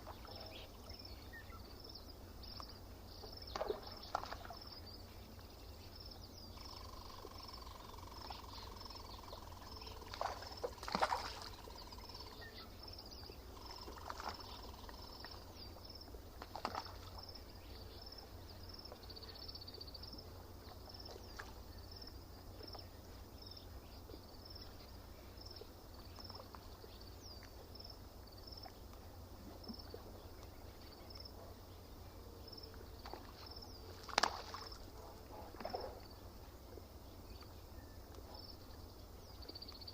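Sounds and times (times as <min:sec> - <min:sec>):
knocks or splashes: 0:03.5 - 0:04.6, 0:10.0 - 0:11.6, 0:16.4 - 0:17.2, 0:33.0 - 0:34.8.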